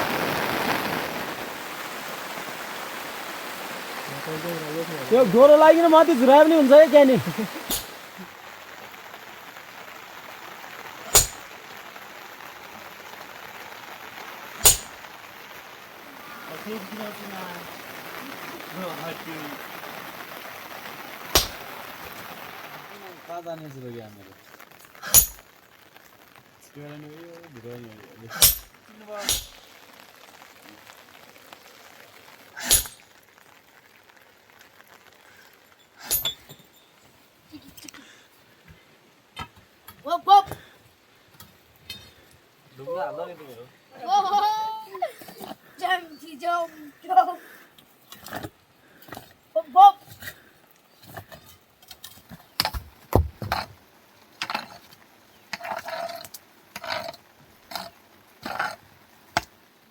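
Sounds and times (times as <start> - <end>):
rain hissing: 0.0 - 59.9
sharp knocks: 21.4 - 21.6.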